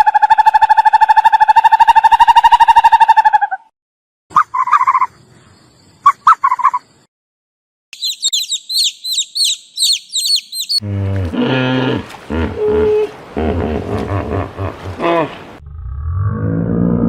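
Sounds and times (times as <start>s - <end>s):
bird calls: 4.3s - 7.0s, 8.0s - 10.8s
fast high-pitched chirping: 8.0s - 10.8s
deep low animal call: 10.8s - 17.0s.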